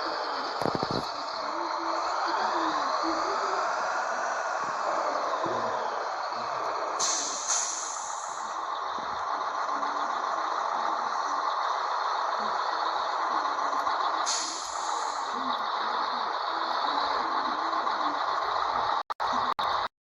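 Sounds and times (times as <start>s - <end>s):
truck engine and road noise: 0.0s - 19.9s
air brake hiss: 7.0s - 8.5s, 14.3s - 15.1s.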